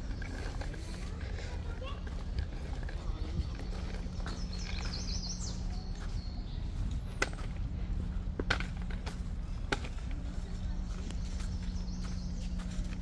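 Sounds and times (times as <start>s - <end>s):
bird chirping: 2.8s - 7.4s.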